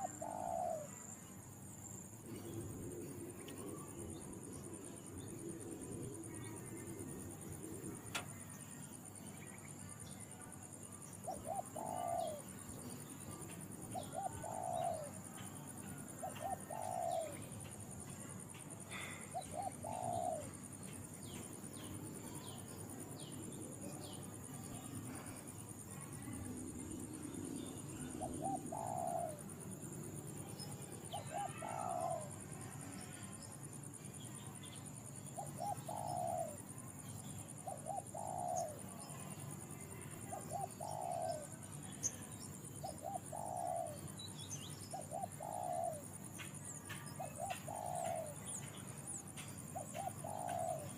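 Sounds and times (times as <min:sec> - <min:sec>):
dove cooing: 0:00.0 - 0:01.2, 0:11.2 - 0:12.7, 0:13.3 - 0:18.2, 0:18.9 - 0:20.7, 0:27.7 - 0:29.9, 0:31.1 - 0:32.4, 0:35.4 - 0:36.6, 0:37.6 - 0:39.4, 0:40.2 - 0:41.6, 0:42.8 - 0:44.1, 0:44.9 - 0:46.1, 0:47.2 - 0:48.5, 0:49.7 - 0:50.9
insects droning: 0:00.0 - 0:50.9.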